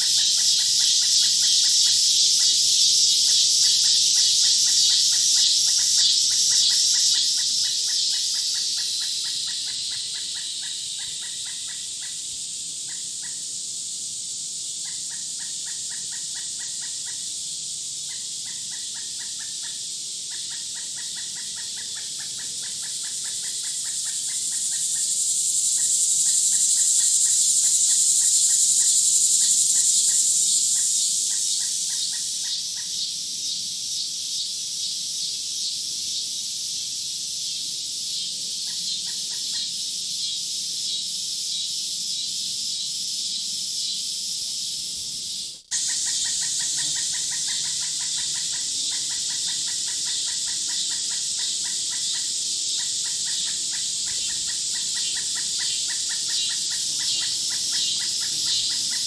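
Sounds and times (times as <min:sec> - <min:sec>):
rapid repeated chirps: 0:00.0 - 0:12.2, 0:45.3 - 0:59.0
insects buzzing: 0:00.0 - 0:59.0
bird calls: 0:45.7 - 0:59.0.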